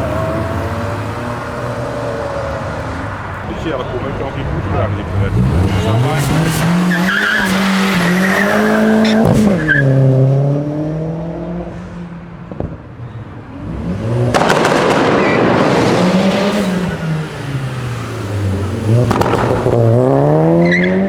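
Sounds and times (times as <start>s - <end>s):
car engine accelerating hard: 0.0s - 12.0s, 13.5s - 21.0s
car with rough noisy exhaust: 12.5s - 20.9s.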